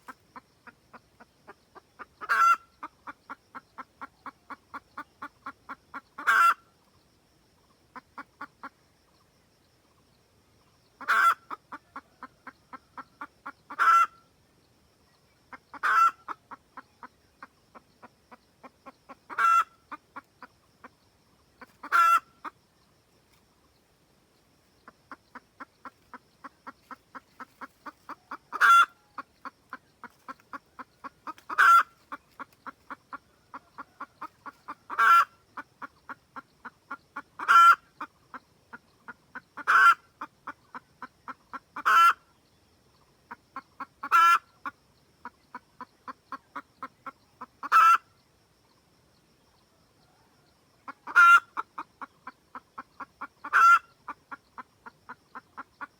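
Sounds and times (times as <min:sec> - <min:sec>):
hen clucking and squawking: 0:00.0 - 0:06.6, 0:11.0 - 0:14.2, 0:15.5 - 0:21.0, 0:21.6 - 0:22.6, 0:24.8 - 0:38.4, 0:39.1 - 0:42.3, 0:43.3 - 0:48.1, 0:50.8 - 0:55.9.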